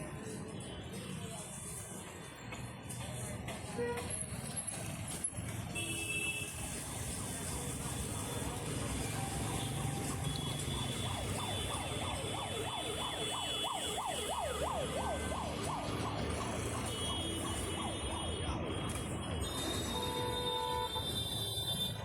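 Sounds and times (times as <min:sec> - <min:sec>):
electronic siren sweeping: 0:09.3 - 0:18.7.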